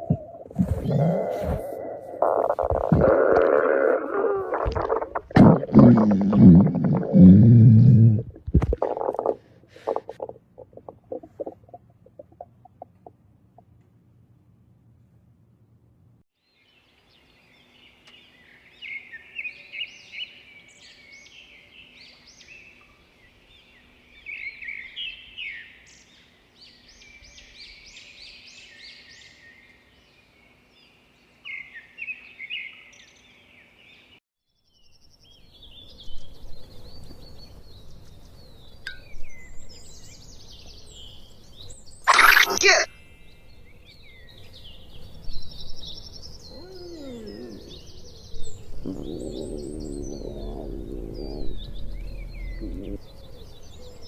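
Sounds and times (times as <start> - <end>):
birds chirping: 0.0 - 13.2, 34.8 - 54.0
low rumbling noise: 48.4 - 53.4.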